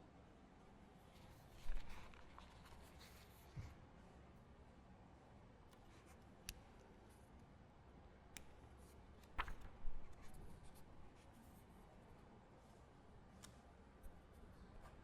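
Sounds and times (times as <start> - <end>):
small knocks and rustles: 1.2 - 3.9.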